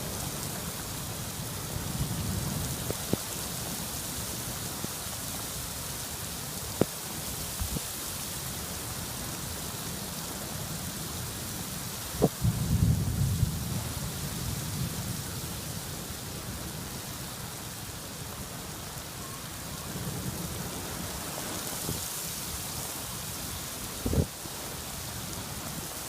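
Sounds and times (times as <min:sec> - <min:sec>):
steady rain: 0:00.0 - 0:26.0
thunder rumbling: 0:12.2 - 0:15.3.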